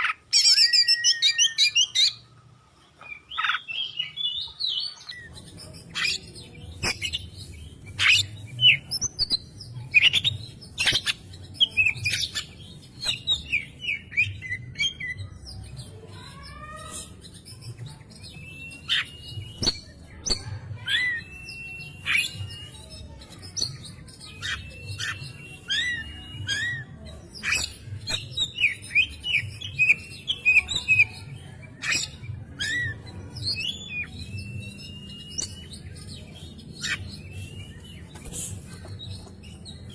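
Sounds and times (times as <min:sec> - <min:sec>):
bird singing whistled song: 0:18.3 - 0:22.9, 0:24.3 - 0:31.1, 0:31.8 - 0:39.3.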